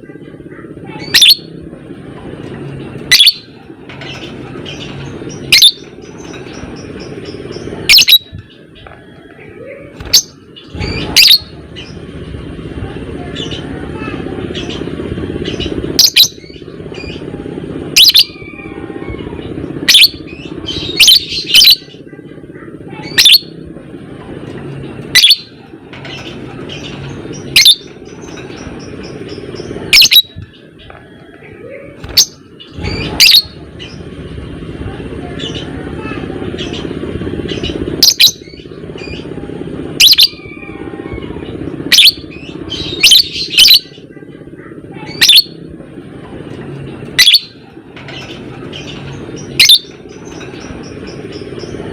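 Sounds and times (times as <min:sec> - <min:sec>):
lovebird shrill calls: 0:03.1 - 0:03.4, 0:07.9 - 0:08.3, 0:25.2 - 0:25.5, 0:27.5 - 0:27.9, 0:29.9 - 0:30.4, 0:49.6 - 0:49.9.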